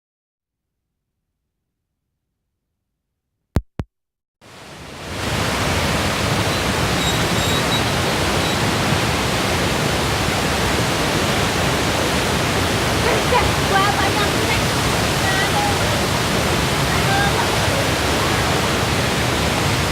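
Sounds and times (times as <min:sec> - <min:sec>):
waterfall rushing: 0:04.5 - 0:19.9.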